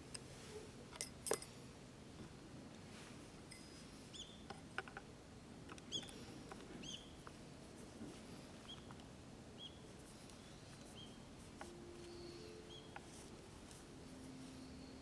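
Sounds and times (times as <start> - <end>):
small bird chirping: 3.6 - 4.5, 5.8 - 7.3, 8.6 - 8.9, 9.6 - 11.3, 12.0 - 13.3.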